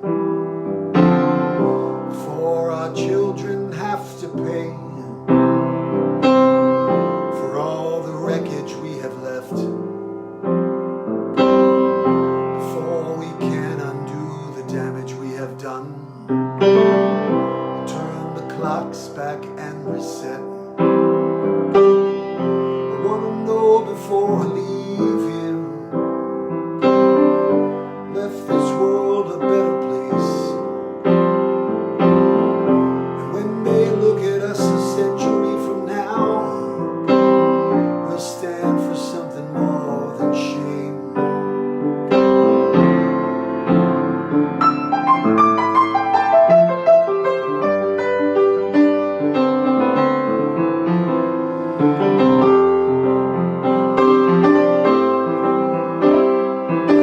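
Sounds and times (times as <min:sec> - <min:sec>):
piano playing chords and melody: 0:00.0 - 0:57.0.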